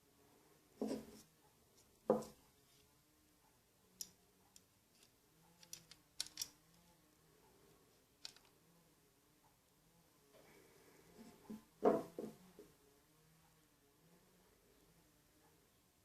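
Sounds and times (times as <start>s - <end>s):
small clicks of reel parts and tools: 4.0s - 6.7s, 8.2s - 8.6s.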